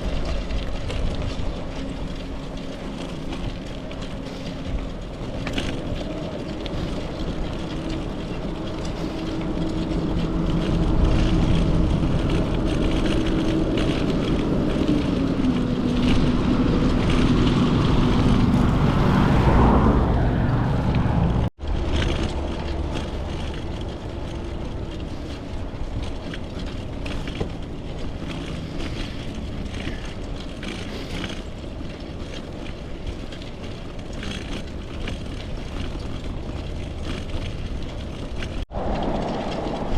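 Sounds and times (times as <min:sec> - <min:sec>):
motor vehicle passing: 0:00.0 - 0:25.6, 0:38.4 - 0:39.9
bicycle tyre and wind noise: 0:00.0 - 0:39.9.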